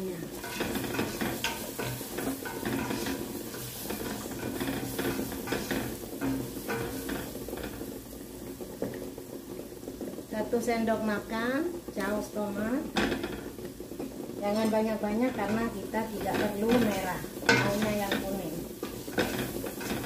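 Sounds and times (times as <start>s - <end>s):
onions sizzling in hot oil: 0.0s - 20.0s
spatula scraping a metal pot: 0.3s - 7.9s, 15.3s - 20.0s.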